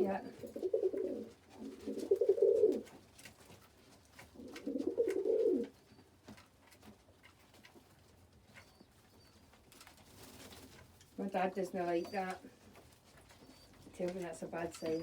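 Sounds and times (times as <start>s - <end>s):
pigeons cooing: 0.0s - 2.9s, 4.4s - 5.7s.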